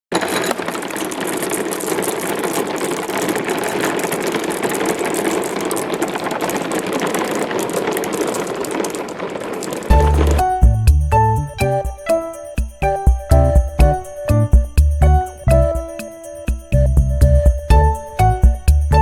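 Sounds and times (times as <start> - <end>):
marbles rattling down marble run: 0.2 - 10.4.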